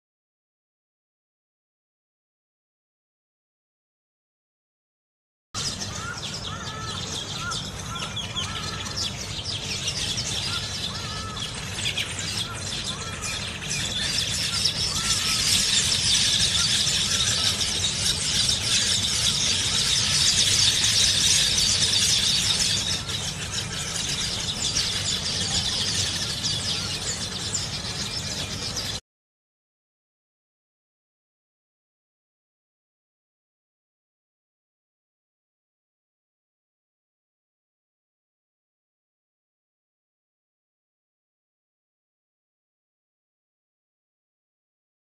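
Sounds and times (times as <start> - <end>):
birds chattering and squealing: 5.6 - 29.0.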